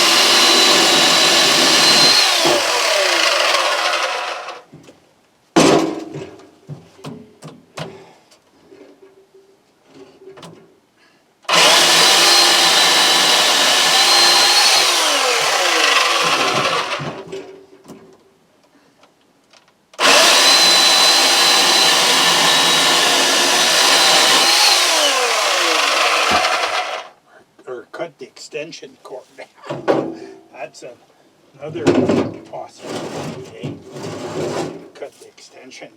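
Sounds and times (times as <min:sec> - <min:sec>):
electric chainsaw cutting wood: 0:00.0 - 0:04.7, 0:11.5 - 0:17.2, 0:20.0 - 0:27.2.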